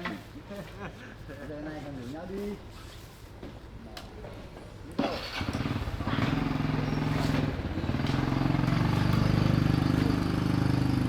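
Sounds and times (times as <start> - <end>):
small motorbike engine running: 5.0 - 11.0.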